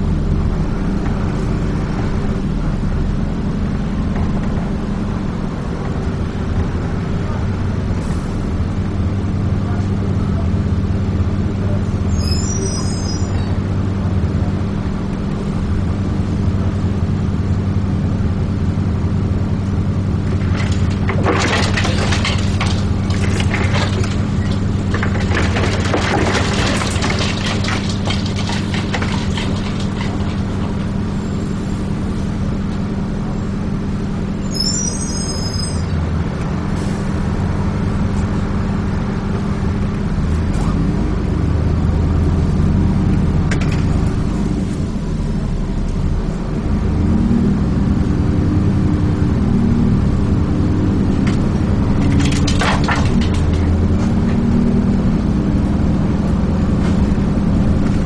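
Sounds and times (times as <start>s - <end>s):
bus diesel engine drone: 0.0s - 58.0s
rattling and clattering: 19.8s - 31.4s, 43.4s - 44.4s, 51.0s - 58.0s.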